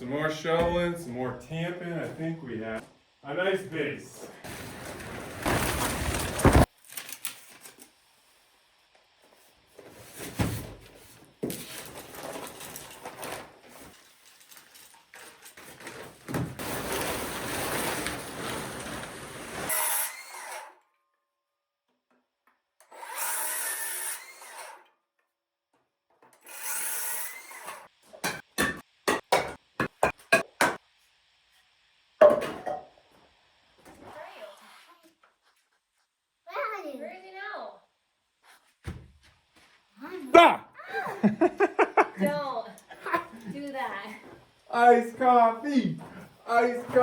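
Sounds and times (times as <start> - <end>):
power tool noise: 15.9 - 20.8, 22.8 - 24.9, 26.4 - 28.0.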